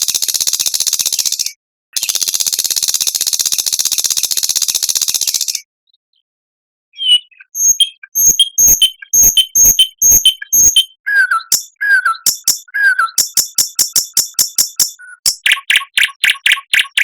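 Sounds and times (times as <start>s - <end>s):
bird falling whistles: 7.0s - 15.9s.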